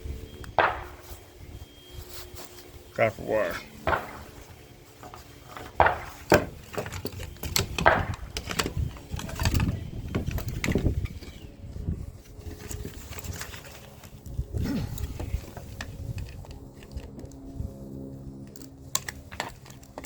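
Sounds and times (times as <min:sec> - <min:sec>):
rustling and rubbing: 0:00.0 - 0:14.2
sharp clicks and knocks: 0:05.0 - 0:11.3.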